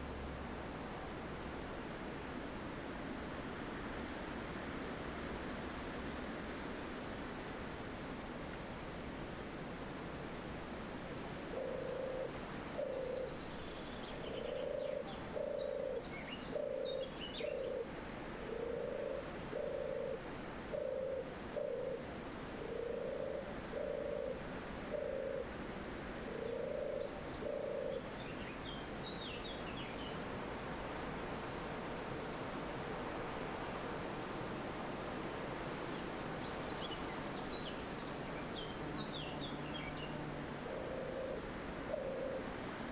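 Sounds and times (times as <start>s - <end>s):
wind in trees: 0.0s - 42.9s
dove cooing: 11.5s - 13.4s, 14.4s - 17.9s, 18.5s - 25.6s, 26.3s - 28.1s, 40.6s - 42.6s.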